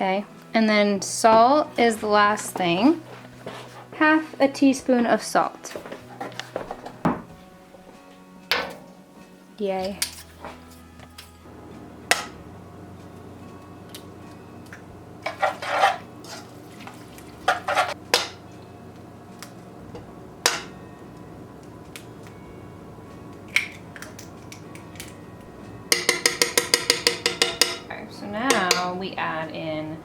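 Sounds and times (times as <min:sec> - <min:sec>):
stirring in bowl: 0:15.2 - 0:18.0, 0:25.9 - 0:27.8
utensils clinking in mixing bowl: 0:15.2 - 0:18.4, 0:25.9 - 0:29.0.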